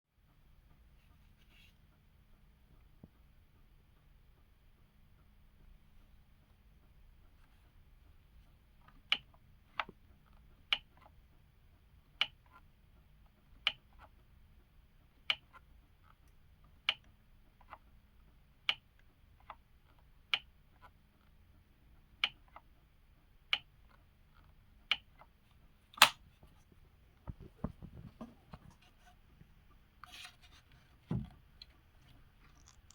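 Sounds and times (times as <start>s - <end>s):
handling knocks and rustles: 26.0s - 32.9s.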